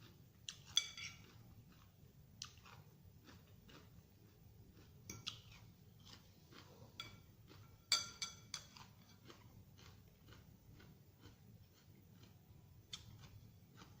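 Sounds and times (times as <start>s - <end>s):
crunchy chewing of salad: 0.0s - 14.0s
cutlery clinking on dish: 0.6s - 1.4s, 7.0s - 9.2s.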